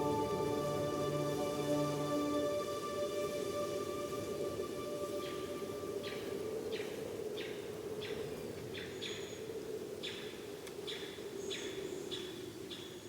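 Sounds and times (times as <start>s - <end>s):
bird calling in falling notes: 0.0s - 7.5s.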